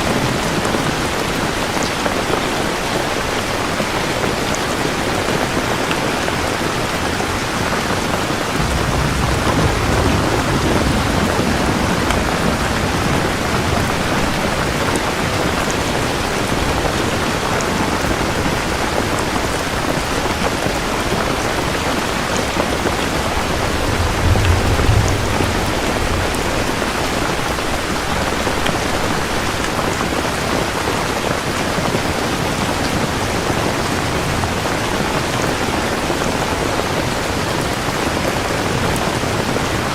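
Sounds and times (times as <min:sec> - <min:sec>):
heavy rain: 0:00.0 - 0:39.9
rolling thunder: 0:04.9 - 0:31.5.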